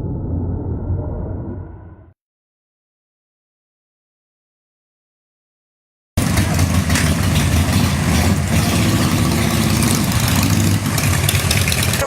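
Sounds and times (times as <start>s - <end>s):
motorcycle engines idling: 6.2s - 12.0s.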